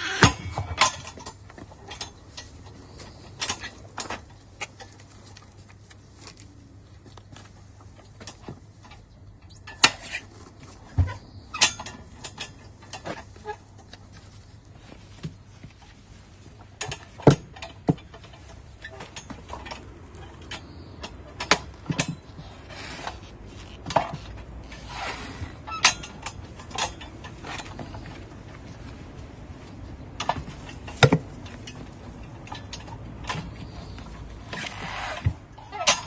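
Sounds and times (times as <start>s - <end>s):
metallic clanks on wheel rim: 0.0s - 5.0s, 10.9s - 14.0s, 16.6s - 28.6s, 30.1s - 36.0s
short scraping rub: 22.5s - 23.6s.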